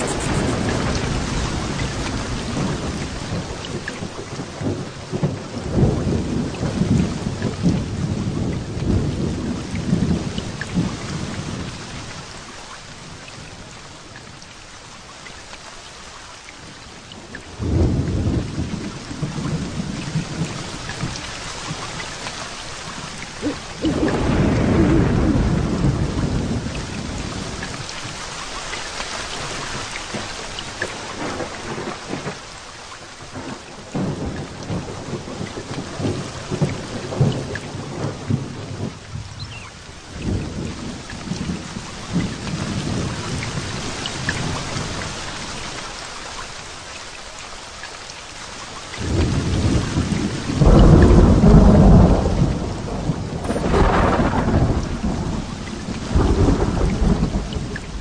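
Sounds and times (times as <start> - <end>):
rolling thunder: 0.0 - 11.8, 17.5 - 27.8, 33.3 - 45.1, 49.0 - 58.0
heavy rain falling: 0.0 - 58.0.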